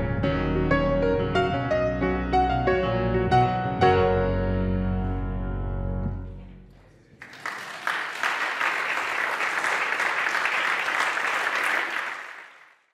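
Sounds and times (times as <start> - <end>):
audience applauding: 6.8 - 12.9.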